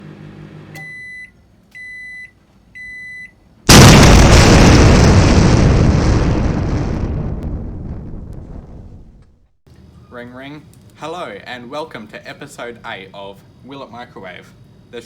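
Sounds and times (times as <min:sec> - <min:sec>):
loud explosion: 0:03.7 - 0:09.5.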